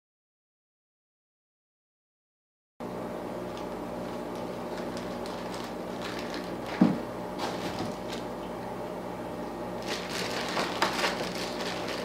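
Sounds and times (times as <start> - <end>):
low electrical hum: 2.8 - 12.0
packaging rustling and crinkling: 4.0 - 8.3, 9.8 - 12.0.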